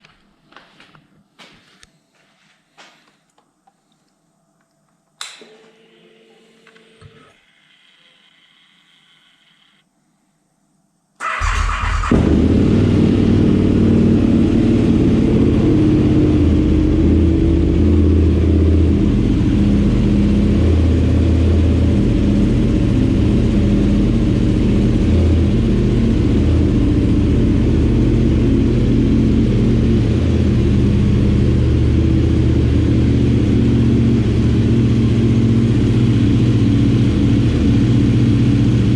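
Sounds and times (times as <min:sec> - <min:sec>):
faint clicks and whirs: 0:03.0 - 0:11.2
motorcycle engine running loud: 0:11.4 - 0:38.9.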